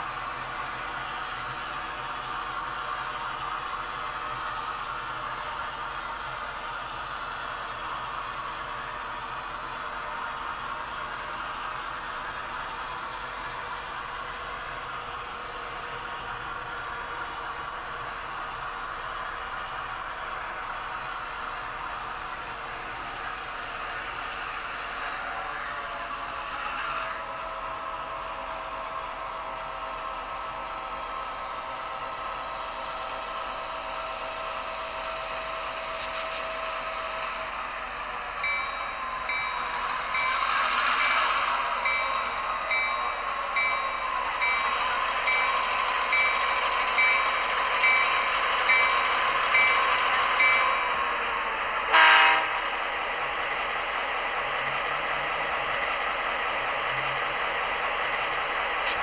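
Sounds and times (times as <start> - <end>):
locomotive bell ringing: 38.3 - 51.1
short horn blast: 51.9 - 52.6.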